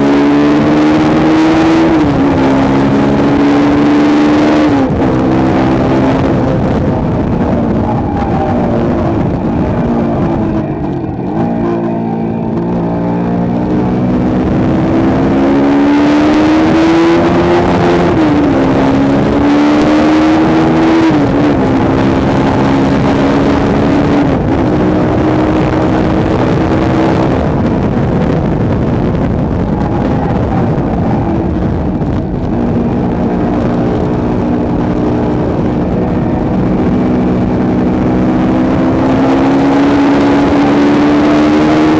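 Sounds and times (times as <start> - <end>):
heavy wind rush: 0.0 - 41.9
motorcycle engine revving hard: 0.0 - 41.9.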